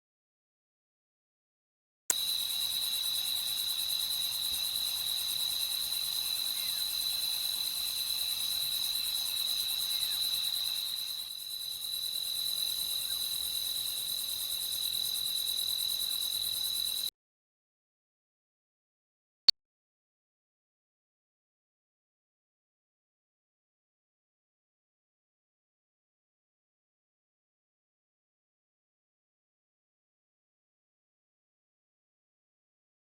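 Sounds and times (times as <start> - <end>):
crickets chirring: 2.1 - 17.1.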